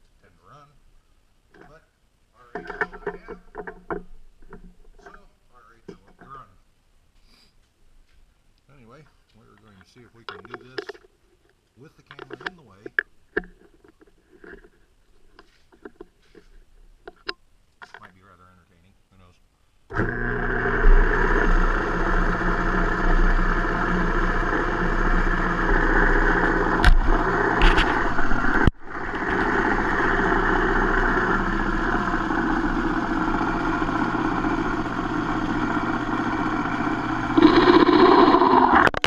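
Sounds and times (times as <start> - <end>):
metal lathe running: 19.9 - 38.8.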